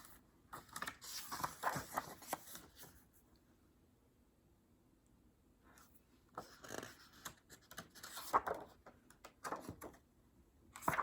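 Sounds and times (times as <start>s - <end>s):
book pages rustling: 0.0s - 3.1s, 5.8s - 10.0s, 10.8s - 11.0s.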